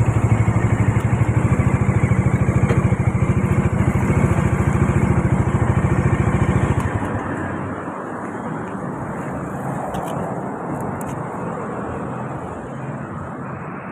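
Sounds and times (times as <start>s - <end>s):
motorcycle engine thumping: 0.0s - 7.4s
steady rushing noise: 3.2s - 13.9s.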